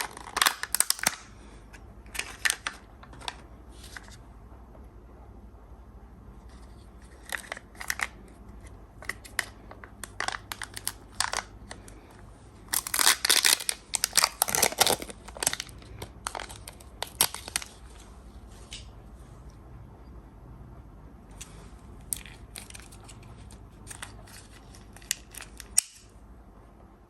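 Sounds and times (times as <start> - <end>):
foil wrapper crinkling: 0.0 - 1.3, 2.1 - 4.1, 7.0 - 8.3, 9.0 - 12.0, 12.7 - 18.0, 22.1 - 26.0.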